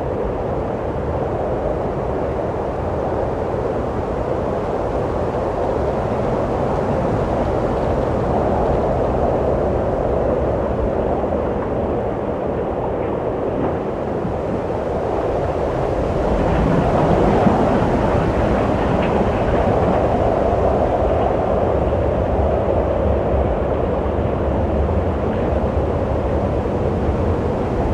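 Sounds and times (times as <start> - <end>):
wind blowing: 25.3 - 27.9.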